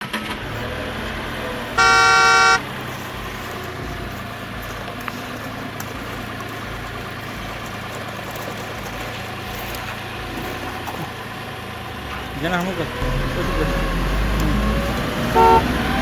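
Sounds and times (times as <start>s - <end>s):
electronic horn toot: 1.8s - 2.6s, 15.3s - 15.7s.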